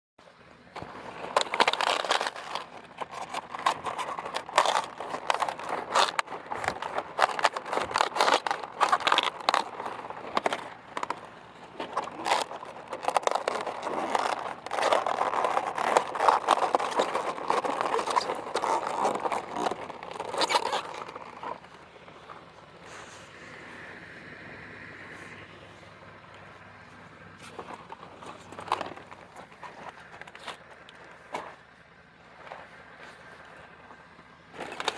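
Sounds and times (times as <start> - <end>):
cabbage leaves crackling and snapping: 0.8 - 22.5, 27.3 - 31.5, 34.5 - 34.9.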